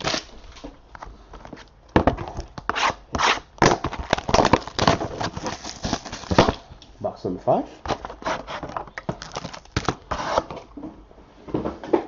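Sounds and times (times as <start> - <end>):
cards and packaging rustling: 0.0 - 6.7, 7.8 - 10.7.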